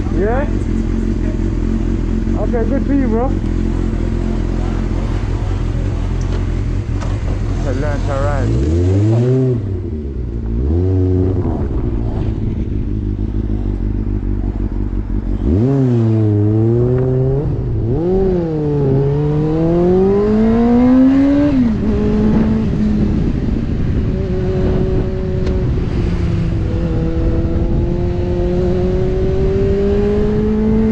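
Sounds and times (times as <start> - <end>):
motorcycle engine revving: 0.0 - 30.9
low rushing noise: 3.5 - 21.0.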